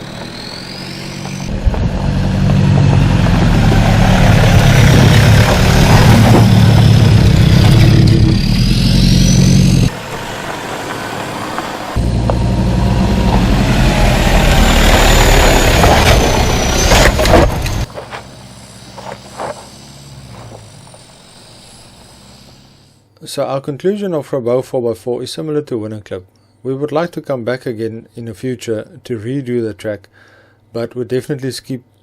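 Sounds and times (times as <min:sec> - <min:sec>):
off-road vehicle engine running: 0:00.0 - 0:23.0.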